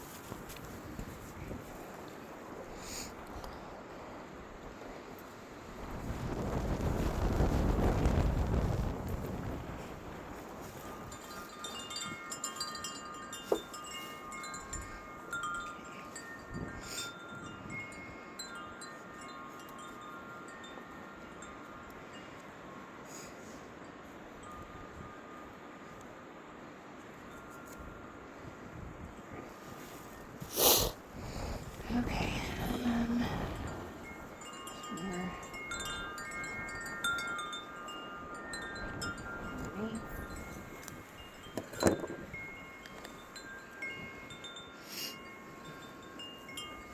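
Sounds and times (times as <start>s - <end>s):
gusty wind: 0.0s - 46.9s
wind chimes ringing: 9.5s - 30.5s, 31.3s - 46.9s.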